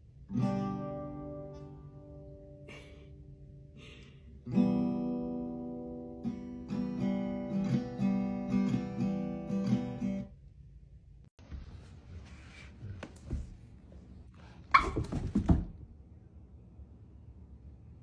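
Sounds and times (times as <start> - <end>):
acoustic guitar strumming: 0.3 - 2.5, 4.5 - 10.3.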